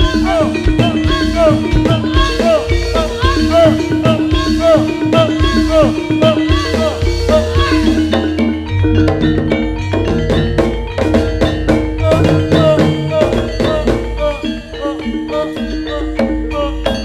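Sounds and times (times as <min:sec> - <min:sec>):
drums playing: 0:00.0 - 0:17.0
tuned metal percussion: 0:00.0 - 0:17.0.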